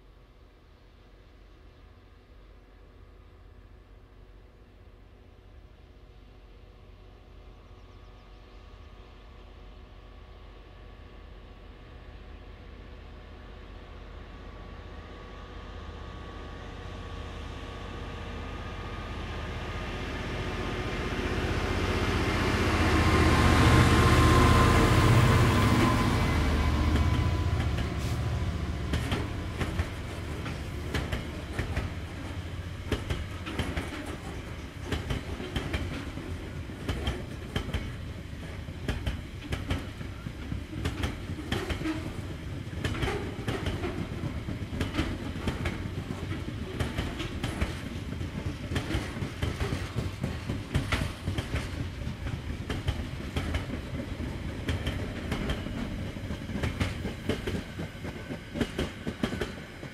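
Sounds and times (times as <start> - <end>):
diesel locomotive engine working: 0.6 - 59.9
wagon wheels clickety-clack on track: 32.9 - 59.9.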